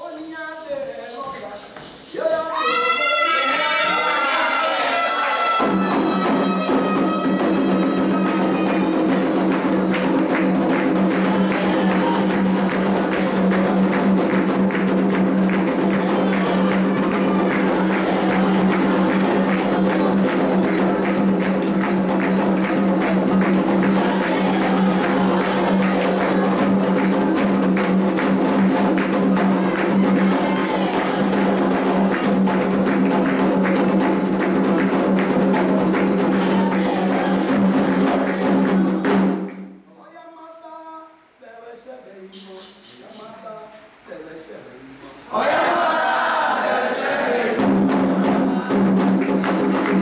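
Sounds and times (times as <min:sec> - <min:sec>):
hand drums playing fast rhythm: 0:05.6 - 0:39.8, 0:47.5 - 0:50.0.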